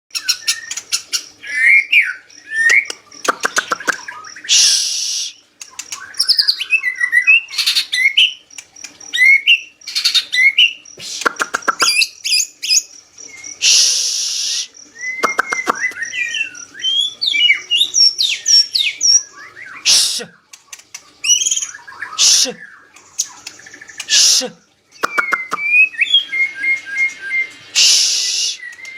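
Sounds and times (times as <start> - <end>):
harsh hissing bursts: 4.5 - 5.5, 10.9 - 11.6, 13.6 - 14.8, 27.7 - 28.6
shama singing whistled phrases: 24.1 - 28.9.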